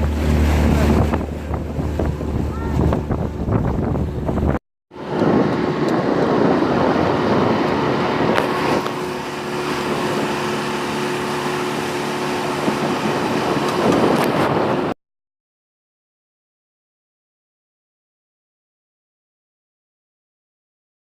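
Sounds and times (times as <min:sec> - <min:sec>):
engine running with rushing noise: 0:00.0 - 0:15.0.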